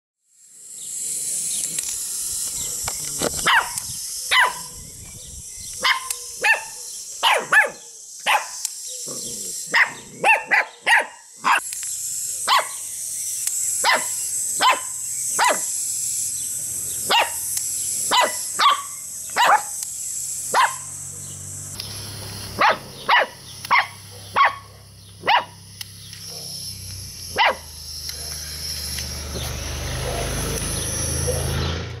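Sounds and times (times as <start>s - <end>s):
puppies yapping: 3.4s - 4.8s, 5.8s - 11.6s, 12.4s - 12.8s, 13.8s - 15.7s, 17.0s - 19.8s, 20.5s - 21.2s, 22.6s - 25.6s, 27.3s - 28.4s, 29.4s - 31.6s.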